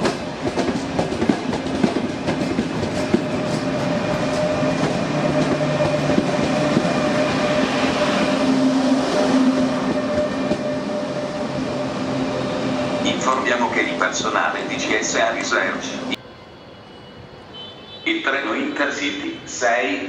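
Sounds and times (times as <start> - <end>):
train wheels clacking over rail joints: 0.0 - 7.6
train running hum: 0.0 - 16.3.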